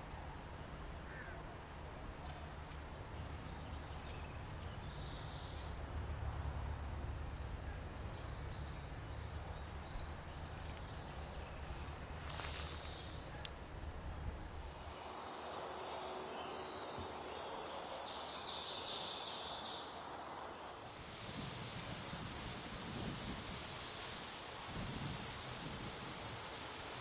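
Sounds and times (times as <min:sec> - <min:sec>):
wild birds chirping: 0:03.2 - 0:27.0.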